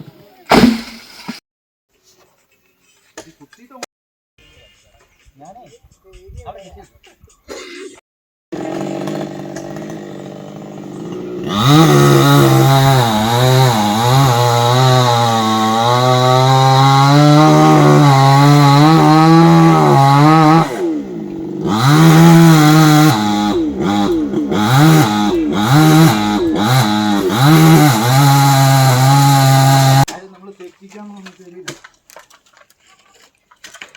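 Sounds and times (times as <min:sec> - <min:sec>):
chainsaw cutting wood: 0:08.5 - 0:30.1.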